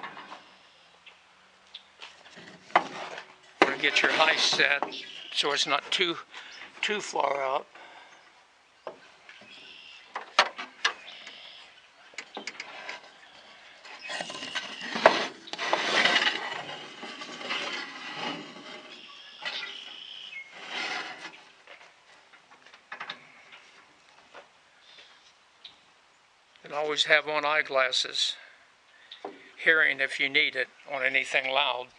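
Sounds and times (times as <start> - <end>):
wood rubbing and scraping: 2.0 - 24.6
clicks and knocks of handling: 10.1 - 11.4, 12.1 - 13.1.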